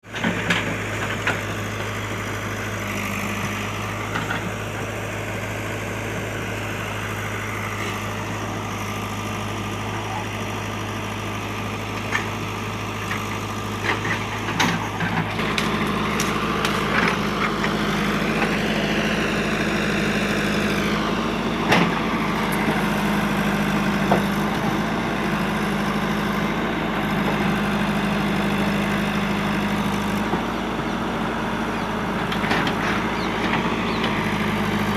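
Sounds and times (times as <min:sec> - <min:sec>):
diesel engine running: 0:00.0 - 0:34.9
sharp knocks and cracks: 0:13.8 - 0:17.8.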